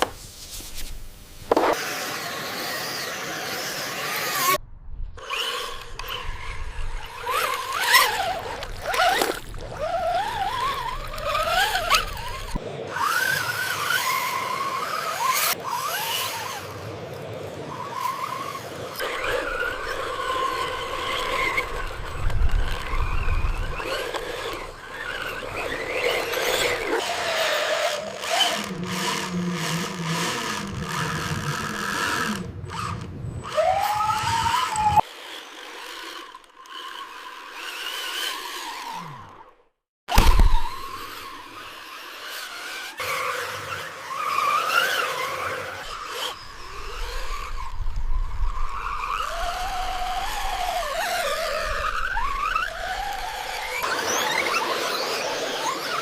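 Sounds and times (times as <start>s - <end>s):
small electric motors whining: 1.2s - 4.6s, 5.2s - 56.0s
scraping and clicking of models: 7.2s - 12.6s, 19.0s - 39.4s.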